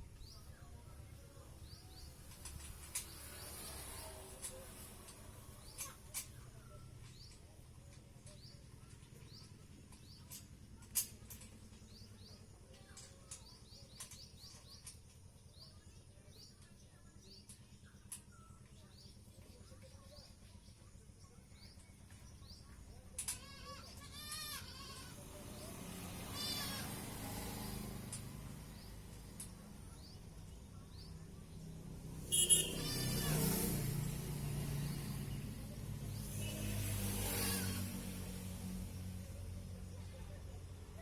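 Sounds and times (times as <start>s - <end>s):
small bird chirping: 25.6s - 37.8s.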